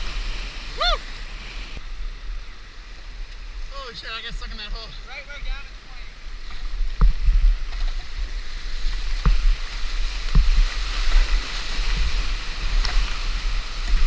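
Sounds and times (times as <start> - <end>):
whitewater rushing: 0.0 - 1.8.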